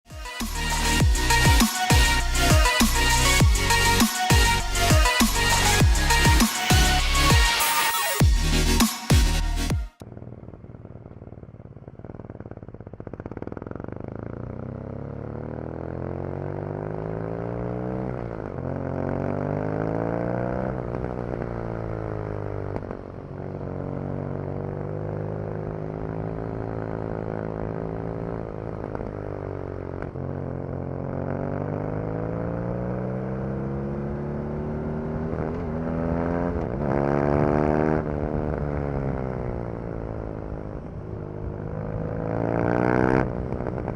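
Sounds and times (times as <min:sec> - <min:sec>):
motorcycle engine revving: 0:00.1 - 0:43.9.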